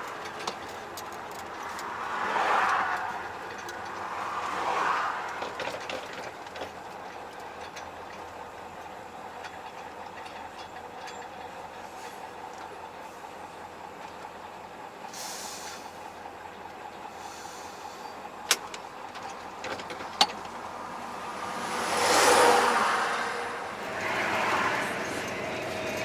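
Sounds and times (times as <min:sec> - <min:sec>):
truck cab rumble: 0:00.0 - 0:26.0
rattling and small clicks: 0:18.5 - 0:20.6.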